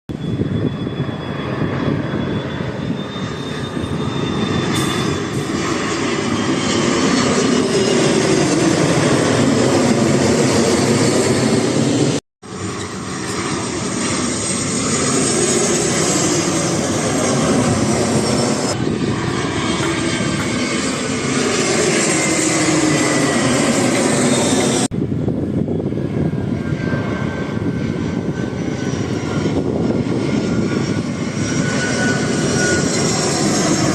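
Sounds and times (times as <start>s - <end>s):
airplane engines passing overhead: 0.1s - 33.9s.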